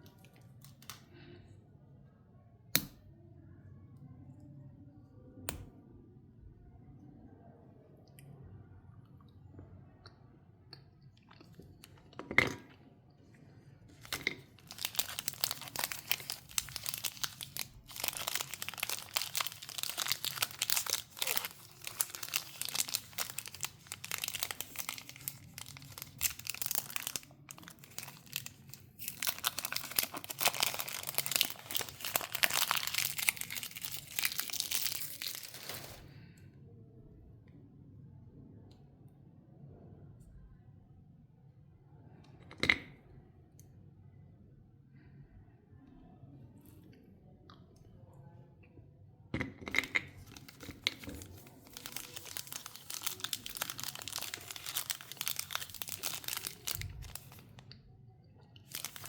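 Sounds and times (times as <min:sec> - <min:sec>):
chocolate wrapper crinkling: 0:00.1 - 0:01.0, 0:13.9 - 0:36.1, 0:50.0 - 0:57.6, 0:58.6 - 0:59.0.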